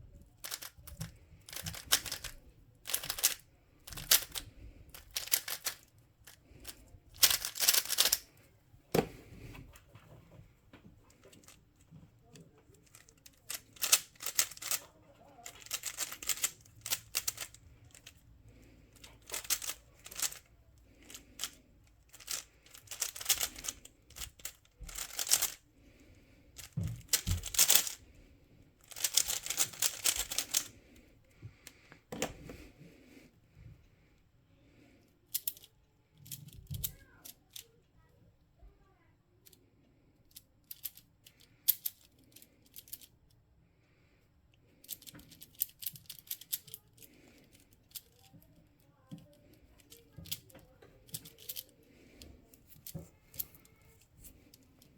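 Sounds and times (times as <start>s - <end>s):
puzzle cube clicking turns: 0.4s - 8.3s, 12.8s - 14.8s, 15.4s - 25.6s, 26.6s - 28.1s, 28.8s - 30.8s, 44.8s - 48.4s, 49.6s - 54.6s.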